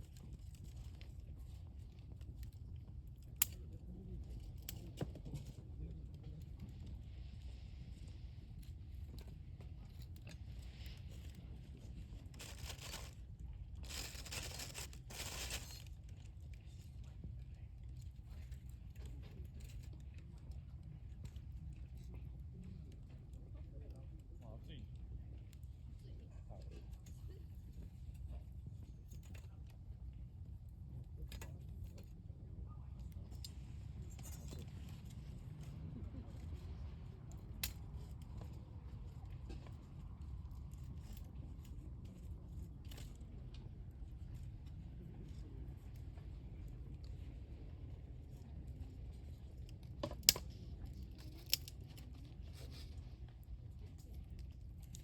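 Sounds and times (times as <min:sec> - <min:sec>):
low fire rumble: 0:00.0 - 0:55.0
campfire crackling: 0:12.2 - 0:16.0, 0:51.4 - 0:52.0.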